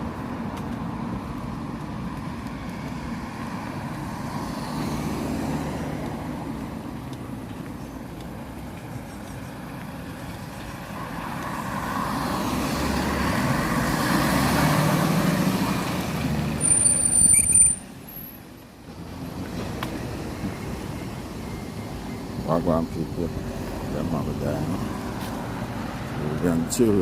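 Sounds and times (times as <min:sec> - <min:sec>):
heavy vehicle passing rumble: 0:09.6 - 0:16.8
brief high squeal: 0:16.6 - 0:17.9.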